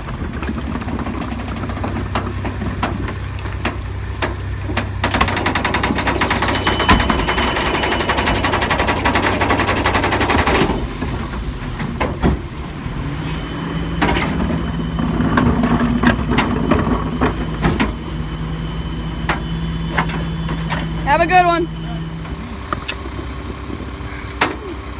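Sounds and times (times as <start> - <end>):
garbage truck engine: 0.0 - 24.9
rattling clatter with high whines: 0.0 - 24.9
clanks and knocks: 0.4 - 12.6, 14.0 - 18.1.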